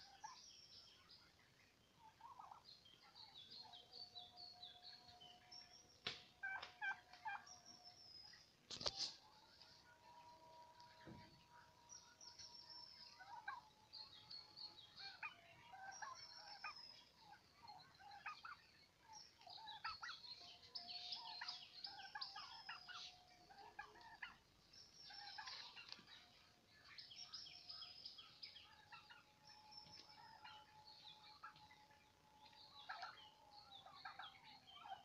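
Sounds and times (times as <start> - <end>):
turkeys calling: 0.0 - 0.9, 2.0 - 2.8, 5.5 - 9.7, 12.8 - 35.0.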